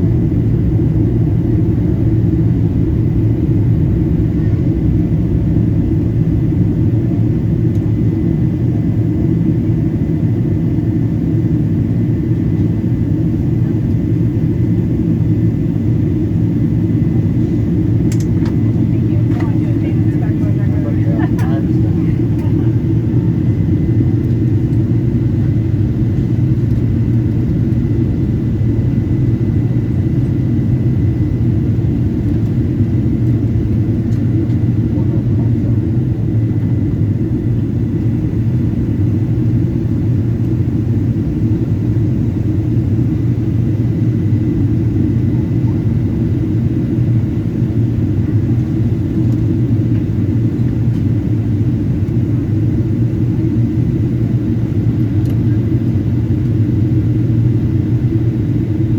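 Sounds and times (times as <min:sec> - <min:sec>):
airplane cabin rumble: 0:00.0 - 0:58.9.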